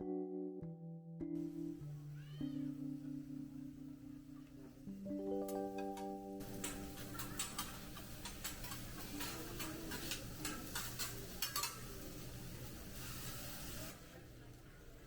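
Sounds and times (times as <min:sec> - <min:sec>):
metal utensils clinking: 0:05.4 - 0:13.9.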